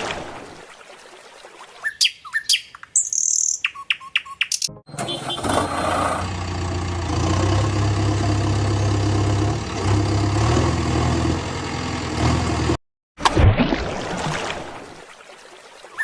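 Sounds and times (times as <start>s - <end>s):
truck engine idling: 4.9s - 12.8s.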